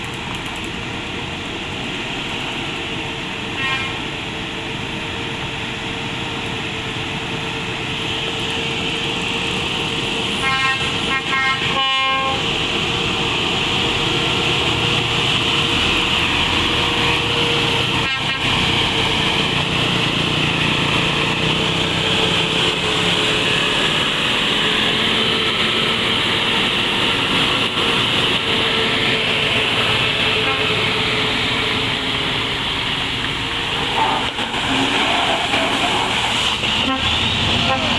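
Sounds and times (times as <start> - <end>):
truck diesel engine labouring: 0.0 - 37.9
vehicle horn toots: 3.6 - 4.0, 10.4 - 12.4, 18.0 - 18.5, 36.8 - 37.9.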